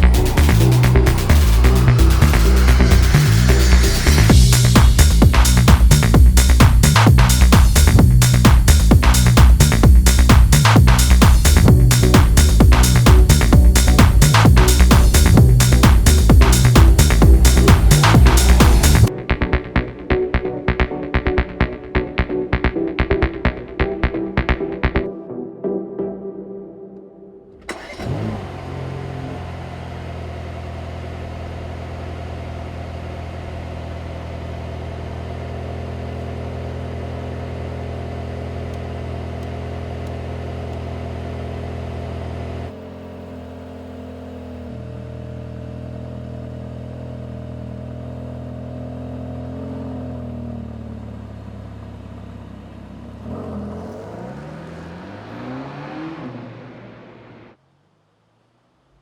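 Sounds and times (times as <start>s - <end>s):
engine revving: 0.0s - 19.1s, 27.6s - 57.6s
car engine starting and idling: 0.0s - 21.6s, 27.5s - 58.1s.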